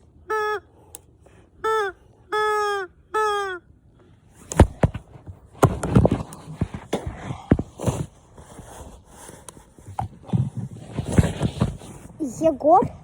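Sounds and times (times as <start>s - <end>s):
honking calls: 0.0s - 3.8s
rustling: 4.2s - 13.0s
sharp knocks and thumps: 4.4s - 8.2s.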